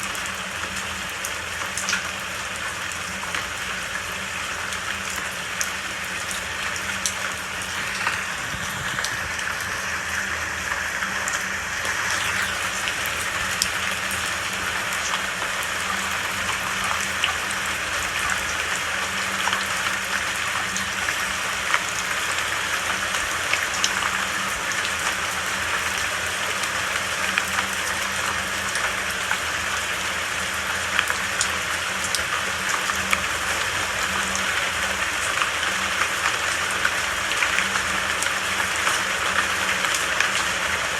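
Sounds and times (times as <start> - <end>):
steady rainfall: 0.0 - 40.9
raindrops ticking: 0.1 - 29.5.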